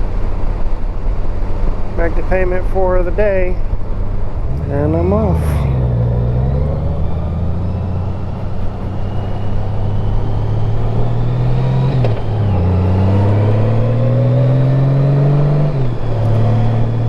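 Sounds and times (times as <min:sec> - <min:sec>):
motorcycle engine accelerating: 0:03.8 - 0:17.0.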